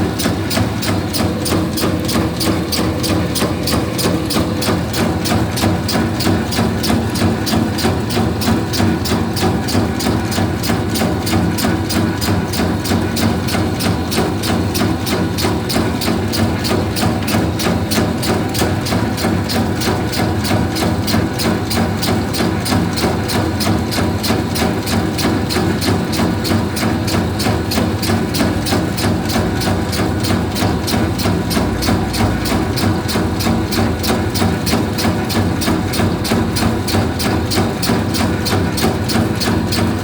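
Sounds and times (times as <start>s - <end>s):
machine motor hum: 0.0s - 8.5s, 24.2s - 40.0s
rapid machine clacking: 0.0s - 40.0s.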